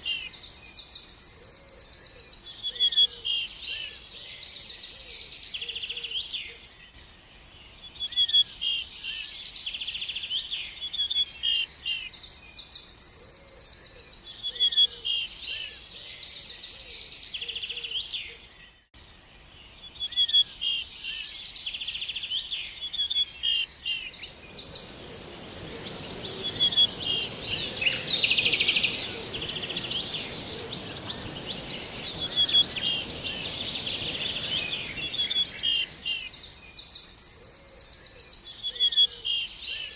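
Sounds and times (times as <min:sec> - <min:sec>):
songbird chirping and trilling: 0:23.3 - 0:39.8
steady high hiss: 0:24.1 - 0:36.6.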